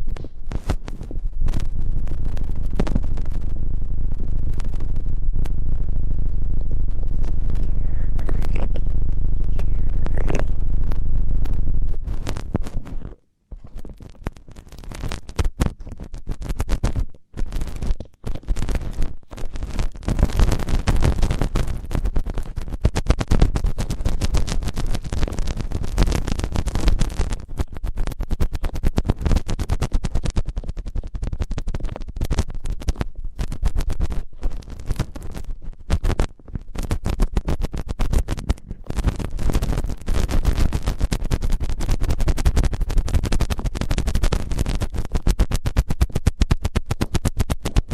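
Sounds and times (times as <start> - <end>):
scratching against microphone: 0.0 - 47.9.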